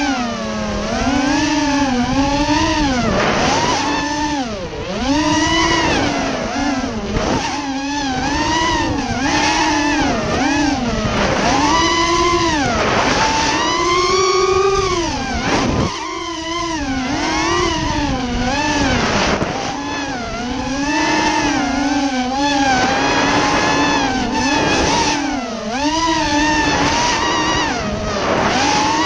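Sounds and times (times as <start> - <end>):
drone motors whining: 0.0 - 29.0
low wind rumble: 0.0 - 29.0.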